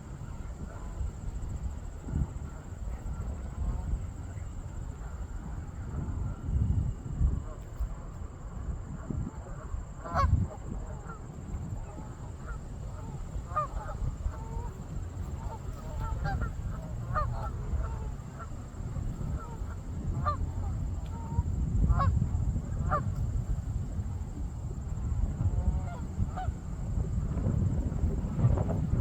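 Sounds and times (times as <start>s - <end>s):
geese honking: 9.5s - 22.1s.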